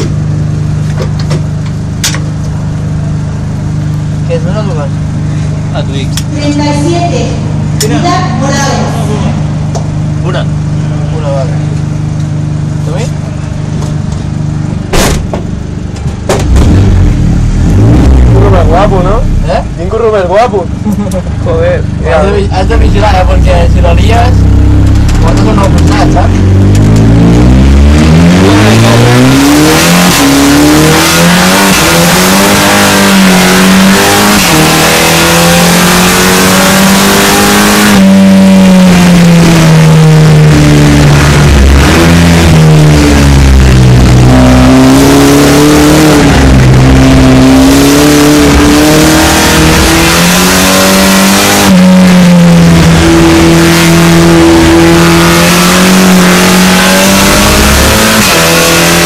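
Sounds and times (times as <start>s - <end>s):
race car engine accelerating: 15.9s - 59.0s.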